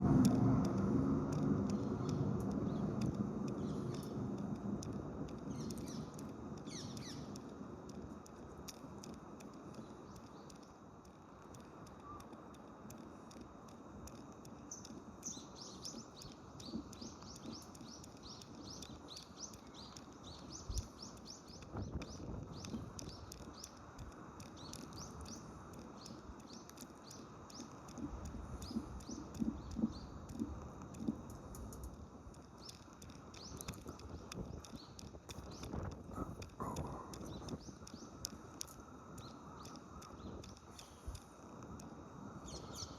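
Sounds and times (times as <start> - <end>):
steady low rumble: 0.0 - 42.9
birds chirping: 1.6 - 4.3, 5.4 - 7.5, 11.9 - 12.5, 14.6 - 42.9.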